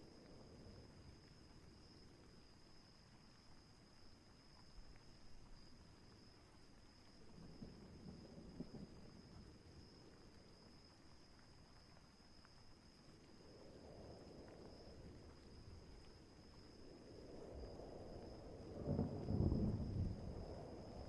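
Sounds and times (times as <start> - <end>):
wind rumbling: 16.7 - 21.0
distant thunder: 18.7 - 21.0.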